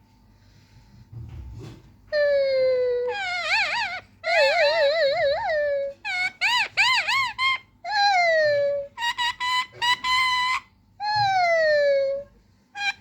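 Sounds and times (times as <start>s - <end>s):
parrot whistling calls: 3.0s - 13.0s.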